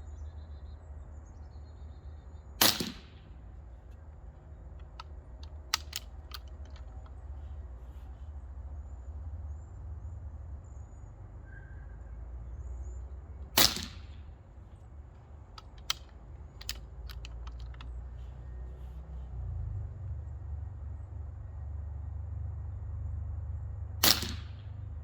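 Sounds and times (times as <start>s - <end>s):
steady low rumble: 0.0s - 11.4s
air rifle shot: 2.6s - 3.3s, 13.6s - 14.2s, 24.0s - 24.8s
light sharp clicks: 3.8s - 7.7s, 15.2s - 19.2s.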